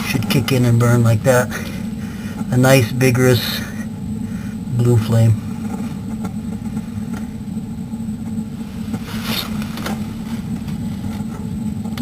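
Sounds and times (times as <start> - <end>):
gas burner flame rumbling: 0.0 - 12.0
brief scrape: 9.0 - 10.0.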